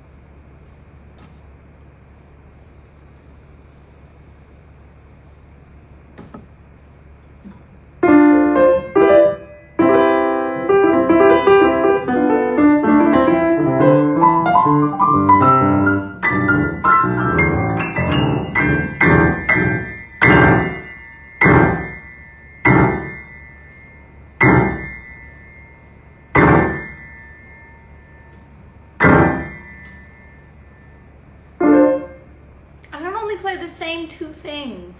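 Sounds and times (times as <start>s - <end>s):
piano notes and chords: 8.0s - 31.0s, 31.6s - 32.3s.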